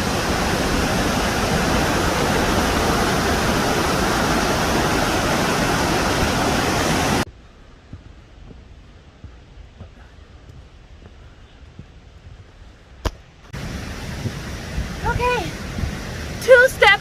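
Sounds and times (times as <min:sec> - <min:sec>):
waterfall rushing: 0:00.0 - 0:07.3, 0:13.6 - 0:17.0.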